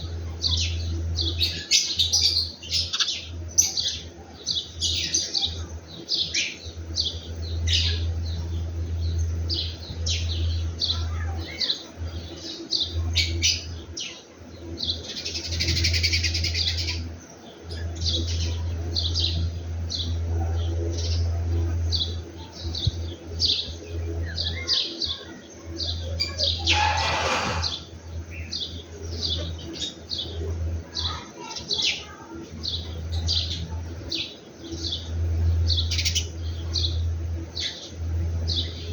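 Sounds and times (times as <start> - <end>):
small birds chirping: 0.0 - 38.9
steady low hum: 0.0 - 38.9
noisy rustles: 26.7 - 27.9.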